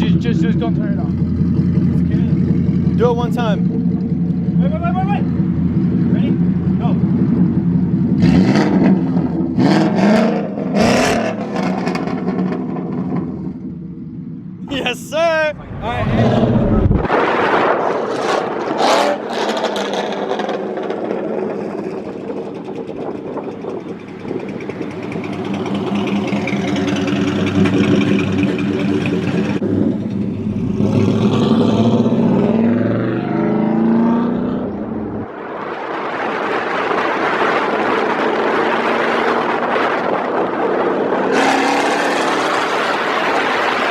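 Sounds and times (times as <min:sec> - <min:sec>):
car engine revving: 0:00.0 - 0:13.8, 0:14.8 - 0:43.9
loud rushing noise: 0:14.7 - 0:18.8, 0:33.9 - 0:43.9.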